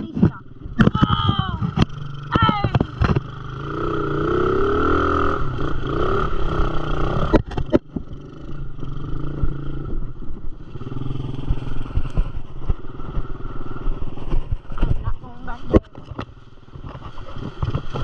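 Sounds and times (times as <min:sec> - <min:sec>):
dirt bike engine revving: 0:01.7 - 0:14.8.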